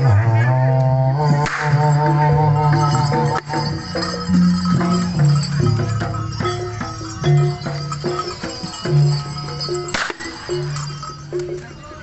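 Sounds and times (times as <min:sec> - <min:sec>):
long held low notes: 0:00.0 - 0:10.0
stepped melody of pitched notes: 0:00.0 - 0:12.0
sharp percussion strokes: 0:01.2 - 0:12.0.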